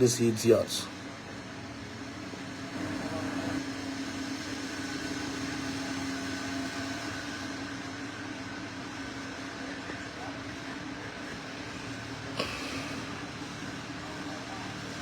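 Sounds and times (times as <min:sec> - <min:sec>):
machine hum with faint whine: 0:00.0 - 0:15.0.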